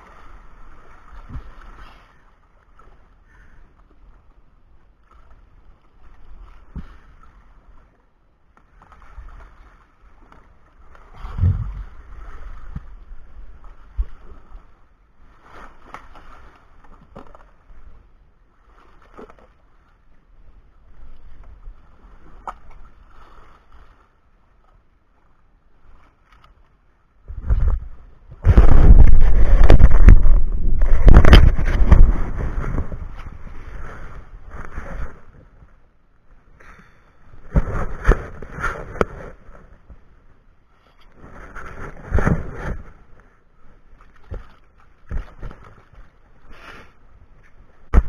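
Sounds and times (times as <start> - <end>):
water sloshing and gurgling: 0.0 - 48.0.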